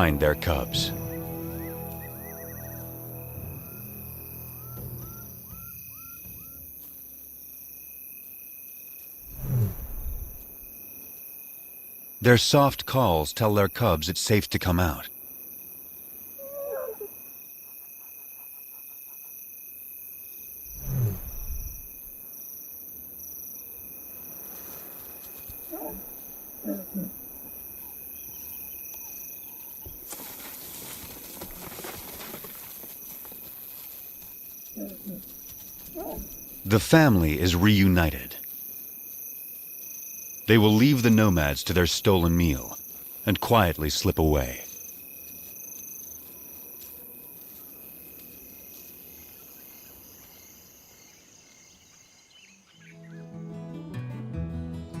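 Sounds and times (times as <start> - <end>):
insects chirring: 0.0 - 53.2
dry grass rustling: 29.4 - 36.6.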